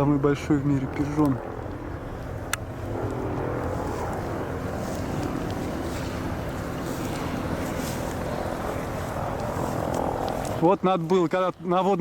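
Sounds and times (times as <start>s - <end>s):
wind noise on microphone: 0.0s - 10.8s
helicopter rotor and engines: 0.0s - 12.0s.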